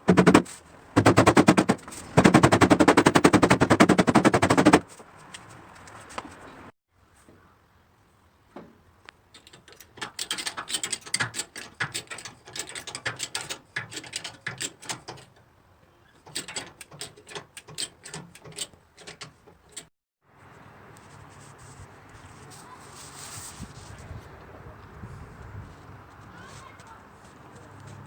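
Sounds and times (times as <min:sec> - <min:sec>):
rapid mechanical clicking: 0:00.0 - 0:04.8.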